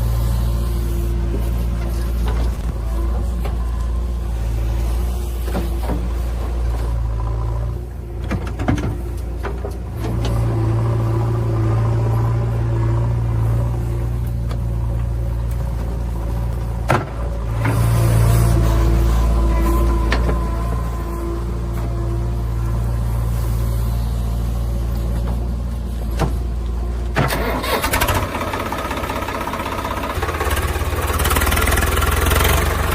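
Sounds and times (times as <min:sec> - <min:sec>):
heavy diesel engine running: 0:00.0 - 0:32.9.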